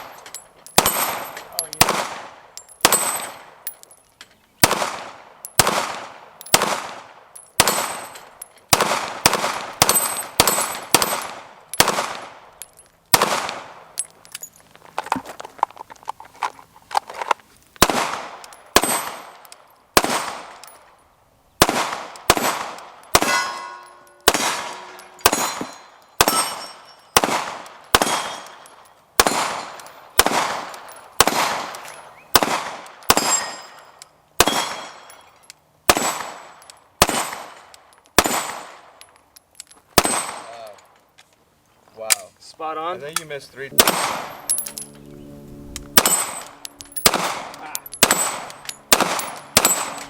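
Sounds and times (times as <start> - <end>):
pistol shots: 0.8 - 3.6, 4.6 - 12.5, 13.1 - 13.9, 17.8 - 20.7, 21.6 - 33.8, 34.4 - 35.1, 35.9 - 39.0, 40.0 - 40.7, 43.7 - 45.0, 45.8 - 50.0.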